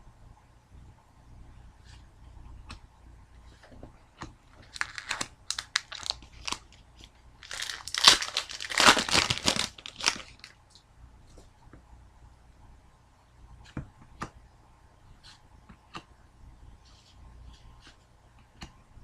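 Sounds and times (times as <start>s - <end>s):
foil wrapper crinkling: 4.6s - 6.8s, 7.4s - 10.6s.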